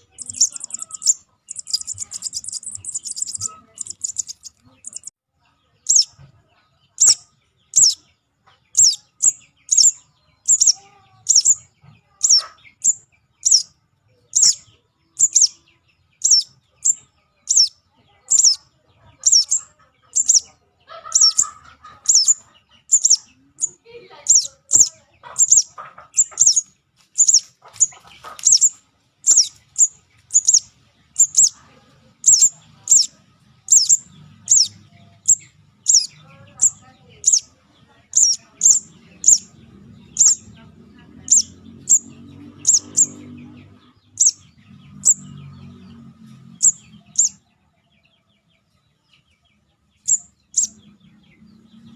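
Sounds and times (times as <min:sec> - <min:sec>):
fainter lower bird chirps: 0:00.0 - 0:05.1, 0:05.8 - 0:06.2, 0:06.9 - 0:08.1, 0:08.7 - 0:40.6, 0:50.0 - 0:51.5
high downward-sweeping bird chirp: 0:00.0 - 0:05.1, 0:05.8 - 0:06.2, 0:07.0 - 0:08.0, 0:08.8 - 0:11.6, 0:12.2 - 0:13.7, 0:14.3 - 0:15.6, 0:16.2 - 0:18.6, 0:19.2 - 0:20.4, 0:21.1 - 0:27.5, 0:28.4 - 0:31.6, 0:32.2 - 0:33.1, 0:33.7 - 0:37.5, 0:38.1 - 0:40.6, 0:41.2 - 0:43.4.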